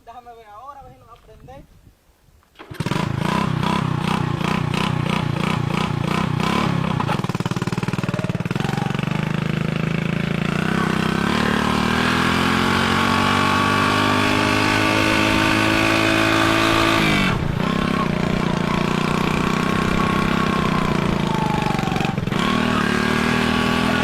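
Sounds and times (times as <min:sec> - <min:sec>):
small motorcycle engine running: 0:02.6 - 0:24.0.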